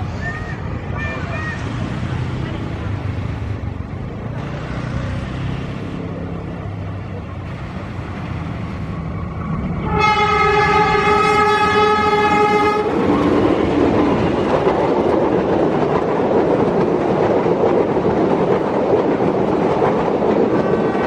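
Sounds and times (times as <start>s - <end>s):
train passing with rumble: 0.0s - 21.0s
train horn: 9.8s - 13.0s.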